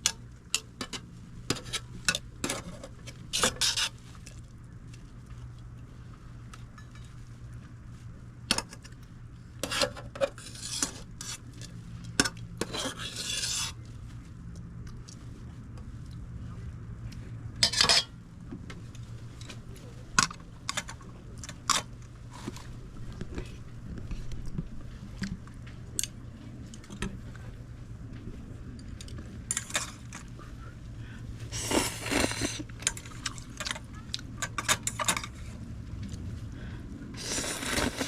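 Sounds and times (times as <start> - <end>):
steady low hum: 0.0 - 38.0
metal utensils clinking on a pot: 17.6 - 18.2, 34.4 - 35.4.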